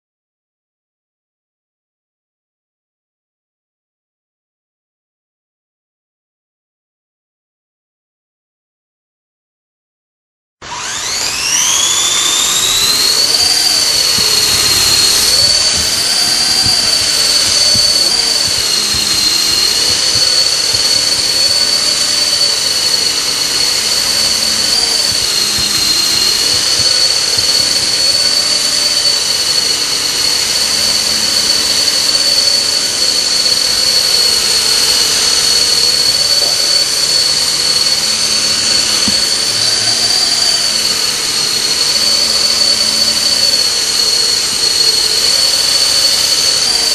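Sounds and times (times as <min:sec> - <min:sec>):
model helicopter high-pitched whine: 0:10.6 - 0:46.9
wavering lower tone: 0:10.7 - 0:46.9.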